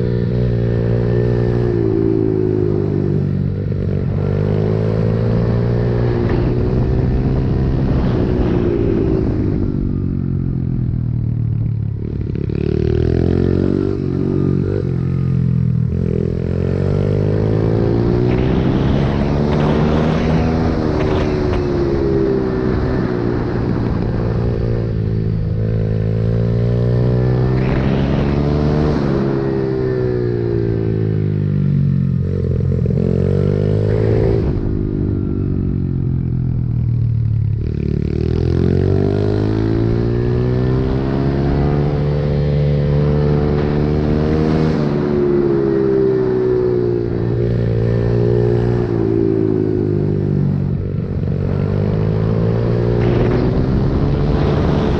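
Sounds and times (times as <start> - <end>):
motorbike engine revving: 12.0 - 31.3, 37.5 - 54.9.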